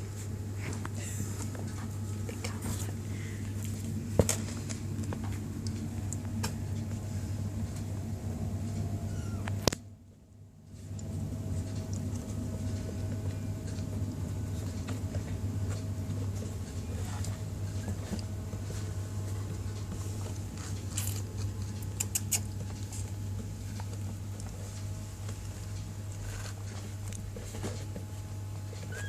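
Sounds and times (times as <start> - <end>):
low hum: 0.0 - 29.0
paws pattering and scratching: 0.1 - 9.6, 10.8 - 29.0.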